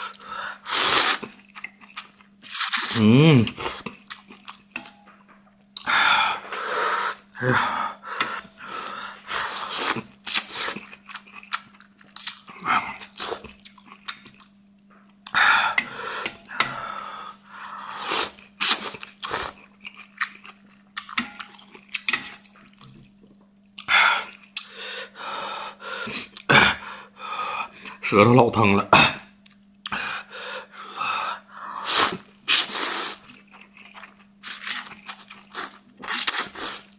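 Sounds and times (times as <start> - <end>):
person chewing crunchy food: 0.0 - 5.0, 8.2 - 24.8, 31.9 - 36.9.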